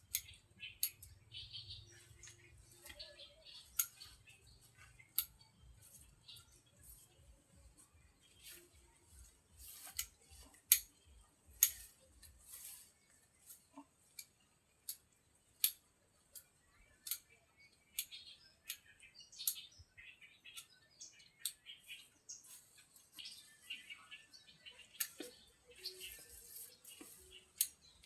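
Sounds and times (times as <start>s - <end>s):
sharp clicks or snips: 3.8s - 4.0s, 11.6s - 12.1s, 16.4s - 17.4s.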